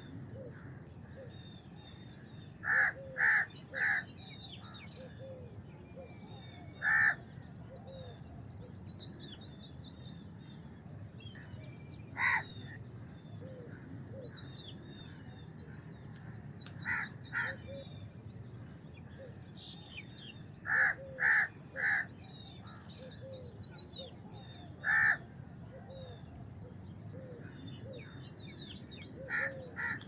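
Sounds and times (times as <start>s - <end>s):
low steady background noise: 0.0s - 30.0s
crow cawing: 2.6s - 4.1s, 6.8s - 7.2s, 12.2s - 12.5s, 16.8s - 17.6s, 20.7s - 22.1s, 24.8s - 25.2s, 29.3s - 30.0s
small birds chirping: 27.6s - 30.0s.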